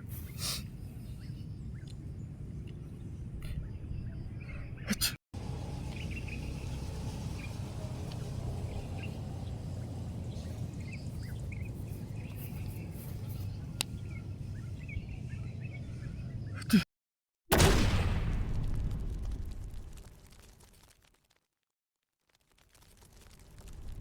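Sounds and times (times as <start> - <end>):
bird chirps: 5.8 - 16.7.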